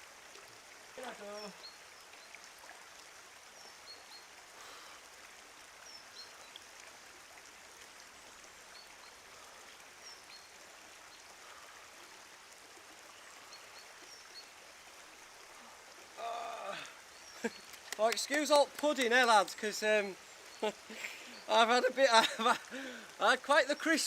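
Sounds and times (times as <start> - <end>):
running water: 0.0 - 24.0.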